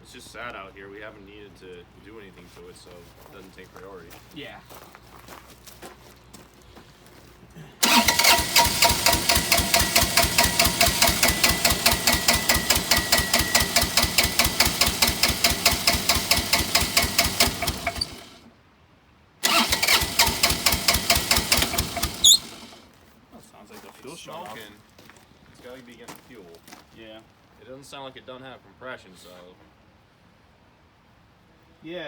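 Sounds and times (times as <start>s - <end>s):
diesel engine cranking: 7.8s - 18.5s, 19.4s - 22.9s.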